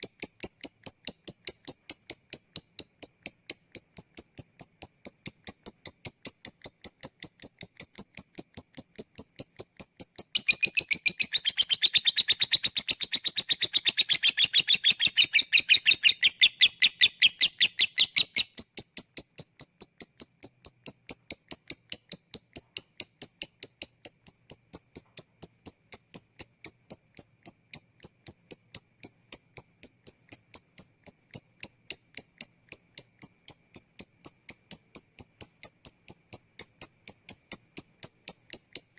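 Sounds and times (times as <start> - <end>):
lovebird chattering trill: 0.0 - 38.9
lovebird ticking calls: 0.0 - 38.9.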